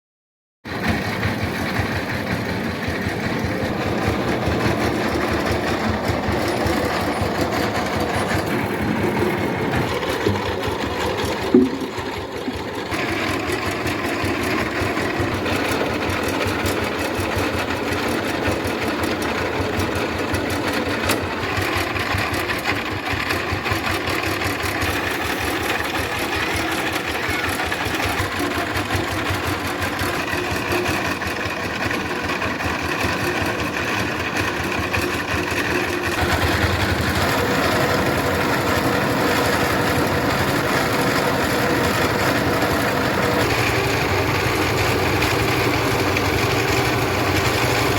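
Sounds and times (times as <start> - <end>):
rice milling machine clatter: 0.7 - 47.9
loud knock: 11.4 - 12.6.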